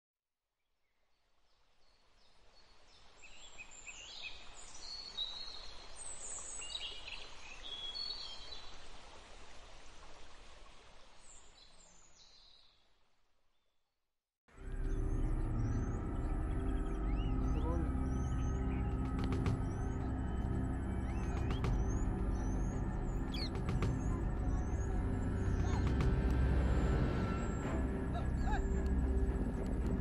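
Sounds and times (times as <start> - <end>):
birds chirping and twittering: 14.6 - 30.0.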